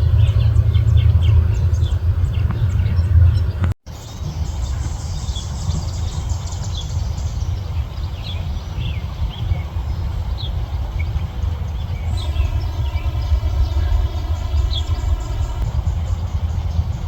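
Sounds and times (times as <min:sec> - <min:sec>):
low rumble: 0:11.3 - 0:17.0.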